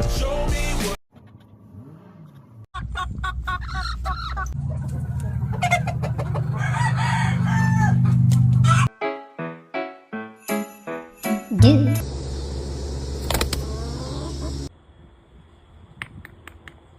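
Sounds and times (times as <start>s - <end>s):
music: 0.0s - 1.0s, 8.9s - 12.0s
chickens clucking: 2.3s - 8.9s, 12.1s - 14.7s
steady low hum: 12.0s - 14.7s.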